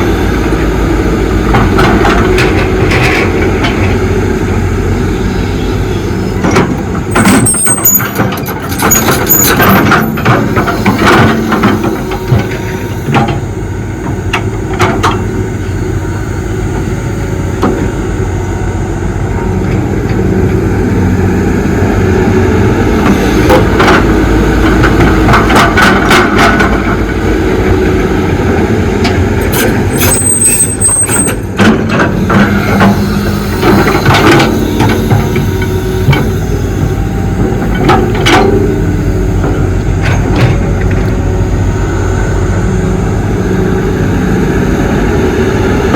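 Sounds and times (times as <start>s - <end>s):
diesel engine under load: 0.0s - 45.9s
metallic clanks and scrapes: 6.5s - 13.4s
high squeal: 29.9s - 31.4s.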